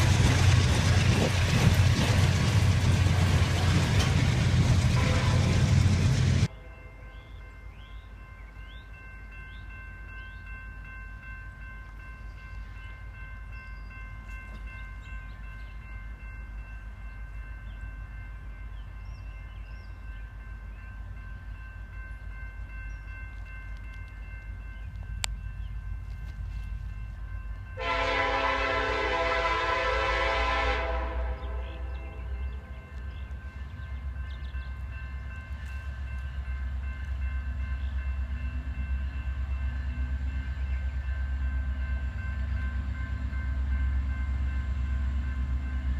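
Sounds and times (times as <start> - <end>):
freight train rumble: 0.0 - 45.9
locomotive air horn blast: 5.0 - 5.7, 27.8 - 31.9.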